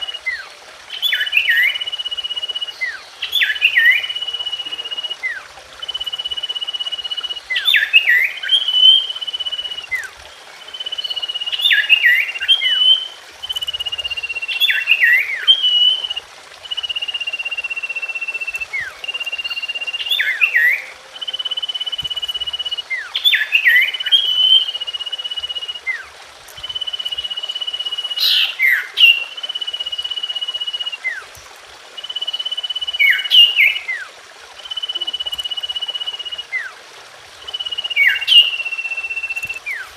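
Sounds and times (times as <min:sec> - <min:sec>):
bird whistle and falling chirps: 0:10.7 - 0:31.3, 0:32.0 - 0:36.7, 0:37.4 - 0:39.9.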